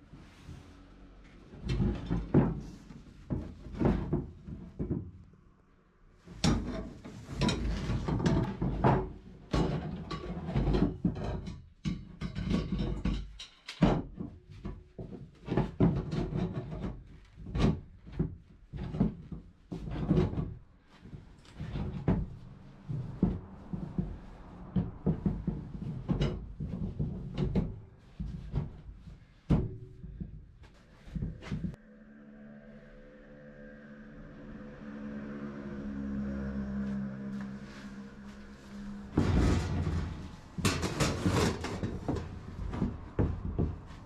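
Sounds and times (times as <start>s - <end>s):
hard objects knocking and clattering: 1.6s - 5.2s, 6.3s - 31.8s, 39.1s - 44.0s.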